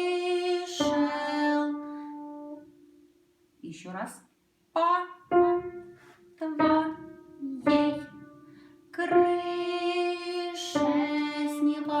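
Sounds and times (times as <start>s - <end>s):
slow simple melody notes: 5.3s - 12.0s.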